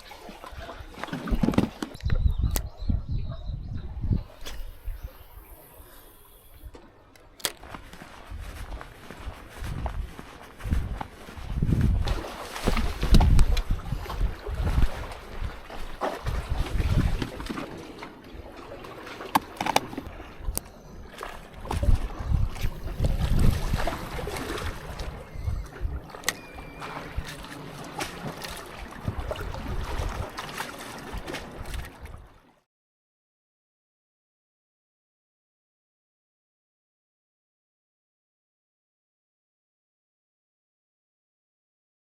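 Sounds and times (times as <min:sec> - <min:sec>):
wind buffeting microphone: 0:00.0 - 0:07.0, 0:07.6 - 0:32.3
surf washing: 0:07.8 - 0:32.2.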